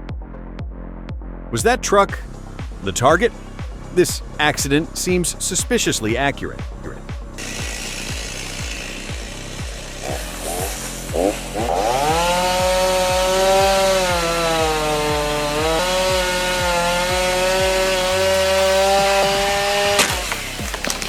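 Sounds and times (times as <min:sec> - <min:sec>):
chainsaw revving: 0:07.4 - 0:21.0.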